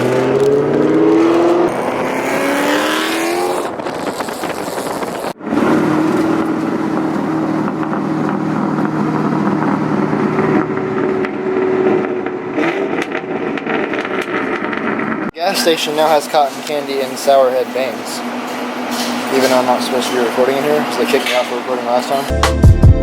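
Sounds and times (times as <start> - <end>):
car engine accelerating hard: 0.0 - 15.3.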